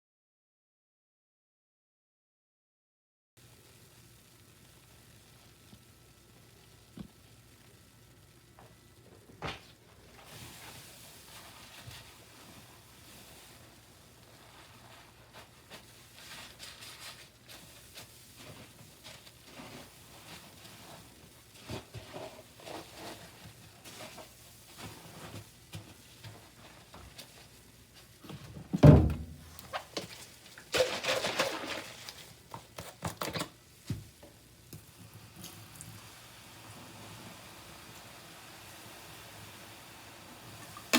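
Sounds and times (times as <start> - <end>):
heavy thunk: 28.8 - 29.4.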